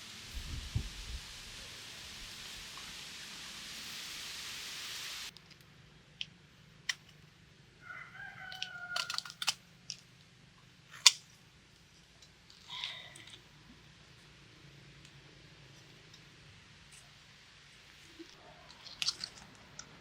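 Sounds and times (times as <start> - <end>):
rooster crowing: 7.8 - 9.6.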